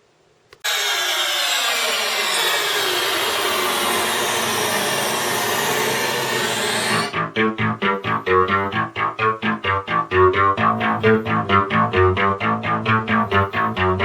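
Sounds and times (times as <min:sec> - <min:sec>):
synth noise sweep gliding downward: 0:00.7 - 0:07.2.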